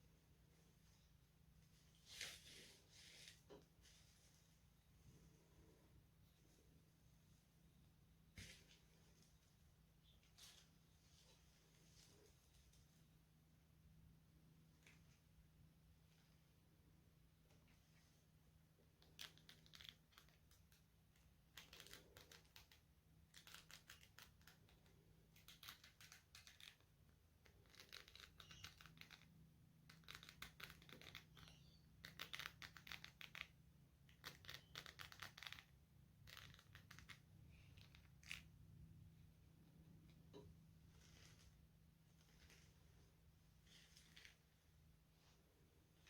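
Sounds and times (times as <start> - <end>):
hairbrush stroking through hair: 1.9 - 4.5.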